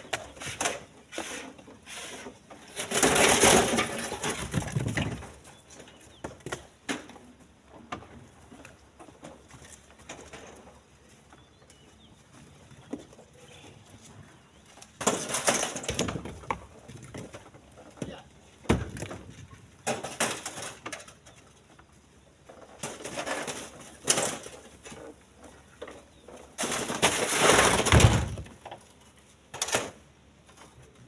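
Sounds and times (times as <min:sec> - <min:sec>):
stones crashing into truck bed: 0:15.0 - 0:17.3, 0:18.6 - 0:20.8, 0:26.6 - 0:28.6.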